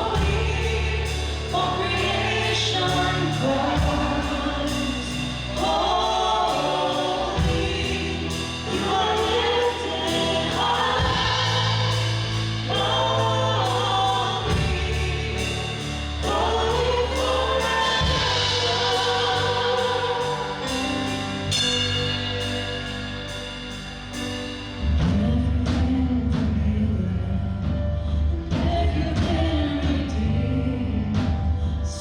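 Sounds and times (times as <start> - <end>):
voices singing together: 0.0 - 23.0
band playing worship song: 0.0 - 32.0.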